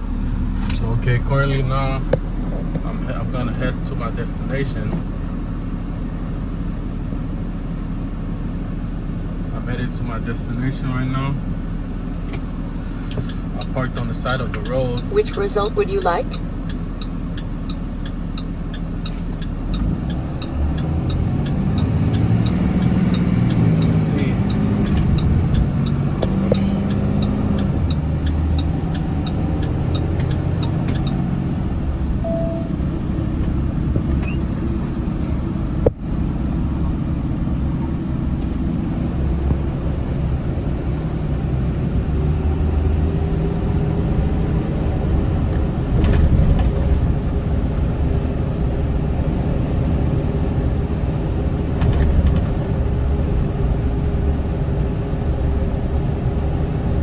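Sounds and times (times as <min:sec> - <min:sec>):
truck engine and road rumble: 0:00.0 - 0:57.0
light rhythmic ticking: 0:13.0 - 0:31.6.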